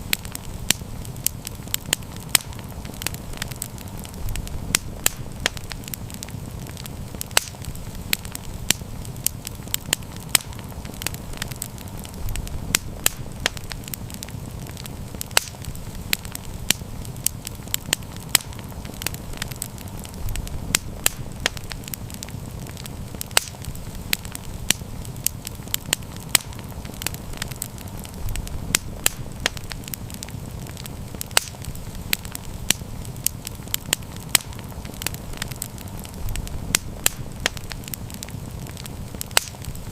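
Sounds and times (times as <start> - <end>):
campfire rumble: 0.0 - 39.9
fire crackles and pops: 0.0 - 39.9.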